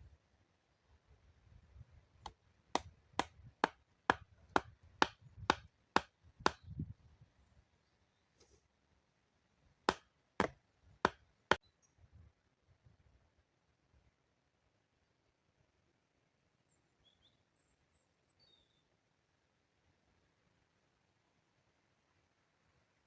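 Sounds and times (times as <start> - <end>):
wood being chopped: 2.2 - 6.8, 9.9 - 11.2.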